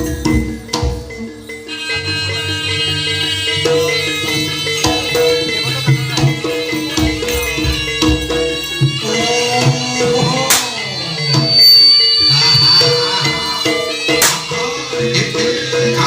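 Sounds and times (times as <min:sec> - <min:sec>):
drums: 0:00.0 - 0:16.0
ringing pitched tones: 0:06.5 - 0:15.3.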